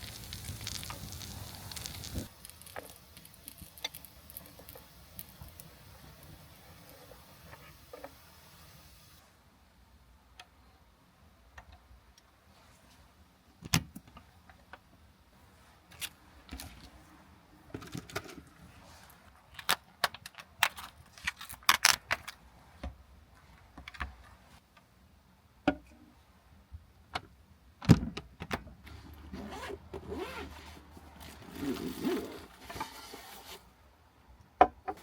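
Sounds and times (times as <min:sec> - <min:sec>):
small hard objects clicking: 0:00.0 - 0:06.4.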